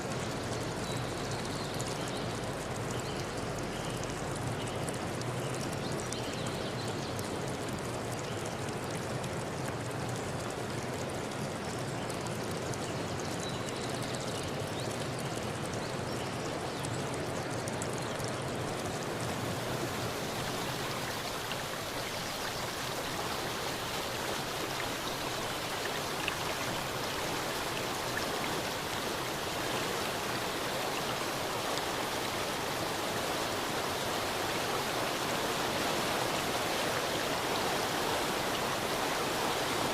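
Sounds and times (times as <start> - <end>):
river water rushing: 18.8 - 39.9.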